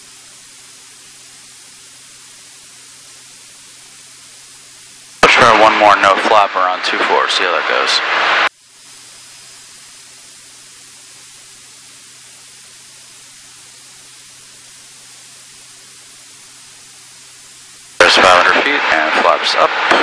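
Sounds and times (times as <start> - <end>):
headset static hiss: 0.0 - 20.0.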